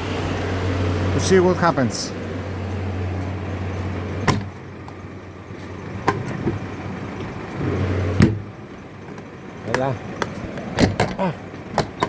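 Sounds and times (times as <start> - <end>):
refrigerator door clunking shut: 8.2 - 8.5.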